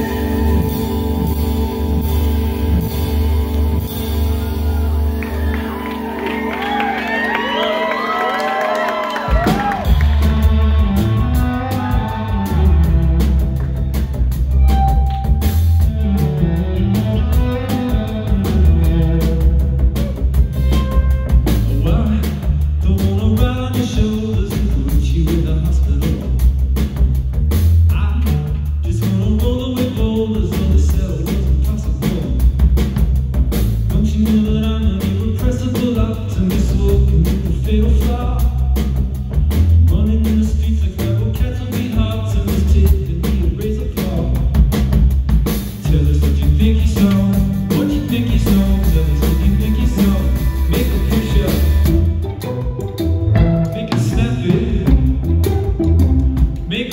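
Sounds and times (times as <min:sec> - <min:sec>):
bass guitar: 0:00.0 - 0:56.9
drum kit: 0:00.0 - 0:56.9
guitar: 0:00.0 - 0:56.9
person singing: 0:45.8 - 0:52.7, 0:53.3 - 0:56.9.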